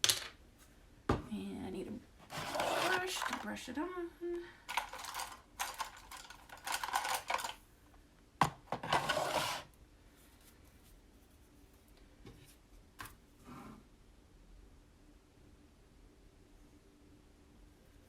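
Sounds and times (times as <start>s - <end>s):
craft supplies clattering and rustling: 2.2s - 3.5s, 4.7s - 7.6s, 8.4s - 9.7s.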